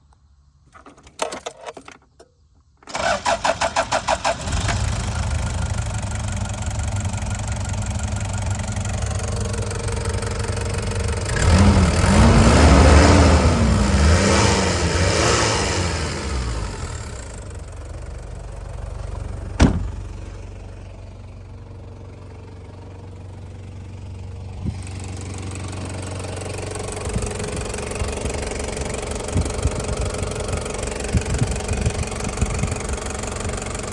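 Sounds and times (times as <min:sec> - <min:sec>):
starter cranking engine: 0:02.8 - 0:05.8
diesel engine idling: 0:02.9 - 0:15.0, 0:15.8 - 0:33.9
engine revving: 0:10.7 - 0:17.4.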